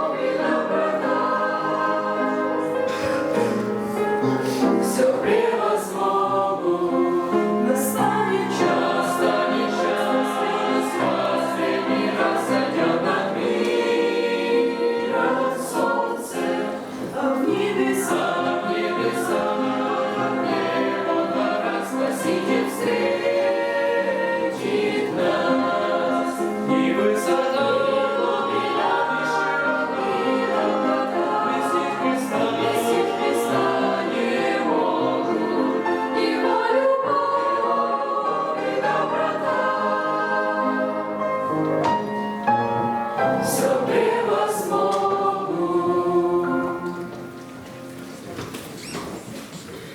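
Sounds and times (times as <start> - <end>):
choir singing: 0.0 - 48.1.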